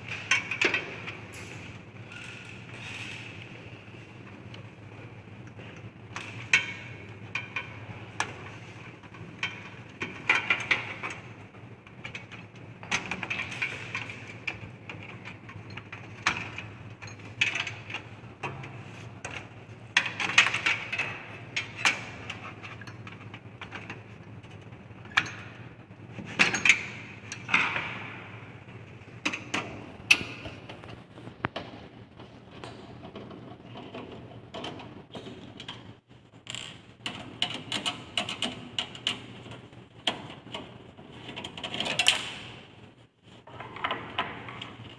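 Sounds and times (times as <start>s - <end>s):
computer parts clicking and rattling: 0.0s - 3.5s, 5.5s - 28.3s, 36.6s - 42.6s
steady low hum: 0.0s - 44.9s.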